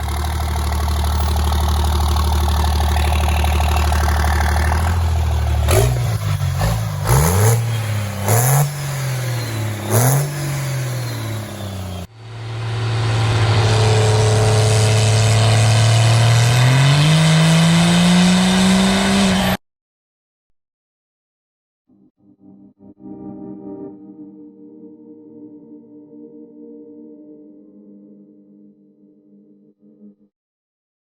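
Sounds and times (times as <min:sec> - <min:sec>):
diesel engine revving: 0:00.0 - 0:19.6.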